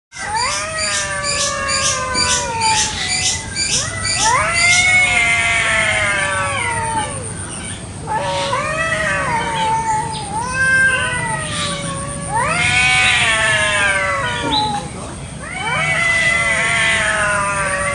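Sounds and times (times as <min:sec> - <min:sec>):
cats yowling: 0:00.1 - 0:17.9
high chirping: 0:00.2 - 0:04.9.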